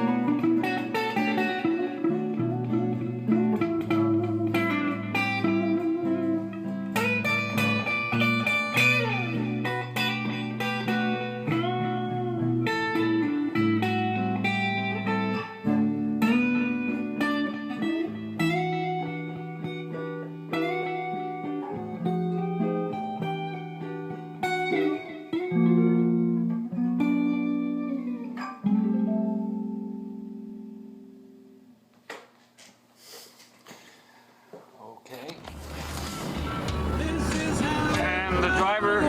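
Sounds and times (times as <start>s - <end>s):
guitar playing: 0.0s - 31.7s, 35.4s - 39.0s.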